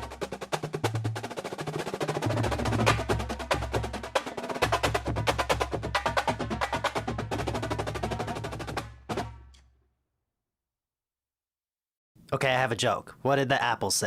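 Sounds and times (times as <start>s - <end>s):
fast drumming: 0.0s - 9.5s.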